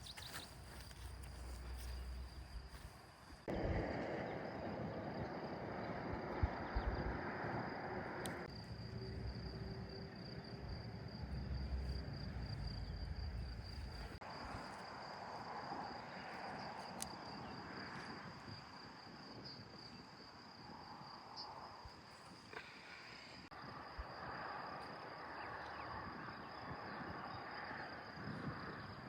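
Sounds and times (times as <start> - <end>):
crickets trilling: 0.0 - 29.0
low rumble: 3.5 - 14.2.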